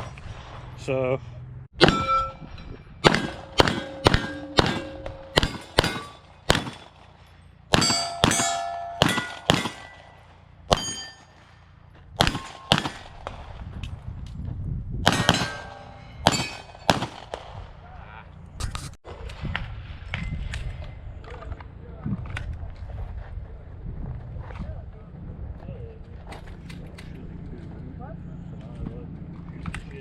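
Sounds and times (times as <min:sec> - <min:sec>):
metallic clang of steel targets: 0:01.8 - 0:11.6, 0:12.2 - 0:13.3, 0:15.0 - 0:17.4
pistol shots: 0:03.0 - 0:11.5, 0:12.2 - 0:13.6, 0:15.0 - 0:17.7.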